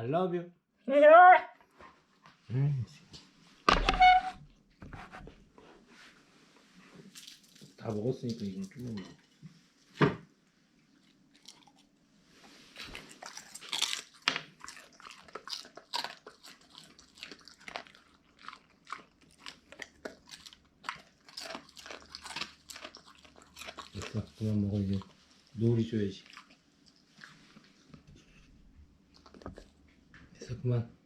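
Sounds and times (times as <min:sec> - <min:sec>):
dog chewing and crunching food: 0:07.0 - 0:10.0, 0:10.8 - 0:30.4.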